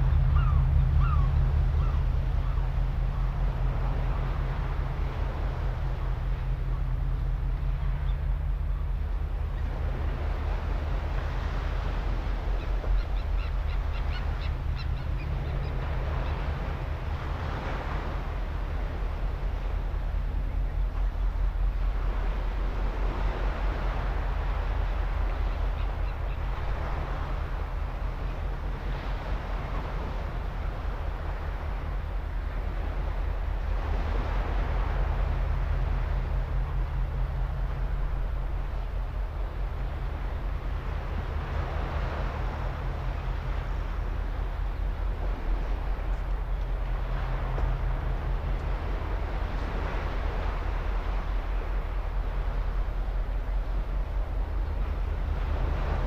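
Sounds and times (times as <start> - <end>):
seabird colony calling: 0.0 - 6.5, 7.6 - 18.1
steady low rumble: 0.0 - 56.0.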